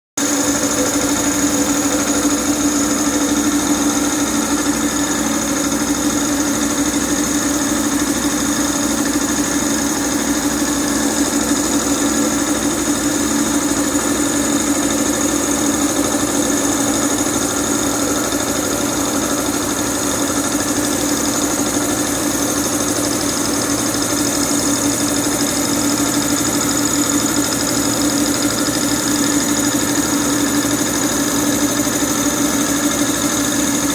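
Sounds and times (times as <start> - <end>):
piston compressor running: 0.2 - 33.9.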